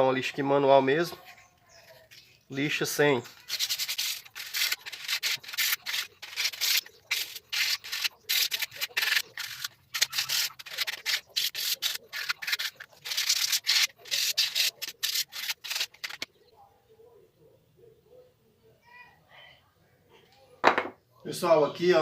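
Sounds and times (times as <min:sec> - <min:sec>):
sandpaper rasping on wood: 0:03.4 - 0:16.3.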